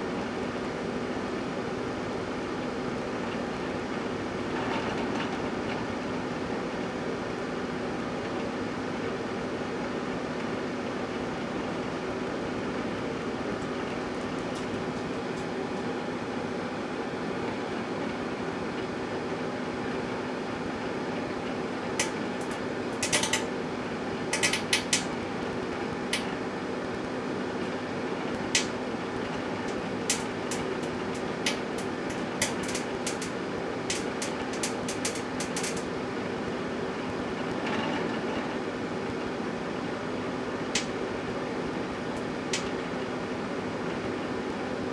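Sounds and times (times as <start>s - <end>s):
microwave oven humming: 0.0s - 44.9s
sparks snapping in microwave: 13.2s - 15.6s, 21.9s - 27.1s, 27.7s - 36.0s, 40.6s - 43.0s.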